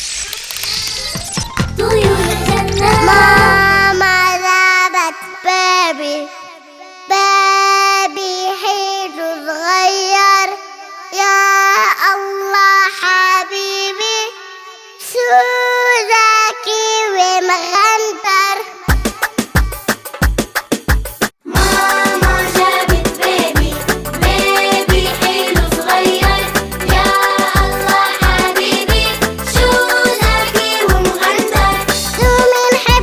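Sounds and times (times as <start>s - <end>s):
girl singing: 1.8s - 19.8s, 21.4s - 23.6s, 29.6s - 33.0s.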